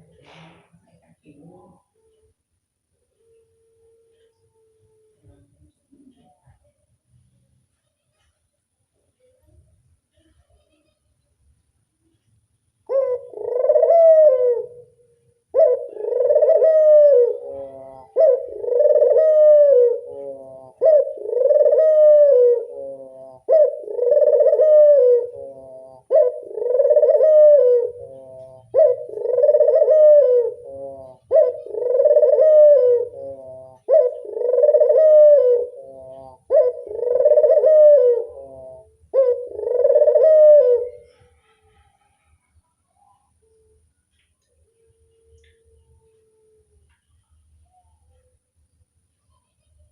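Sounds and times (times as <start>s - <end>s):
dove cooing: 3.0s - 5.4s, 12.9s - 42.3s.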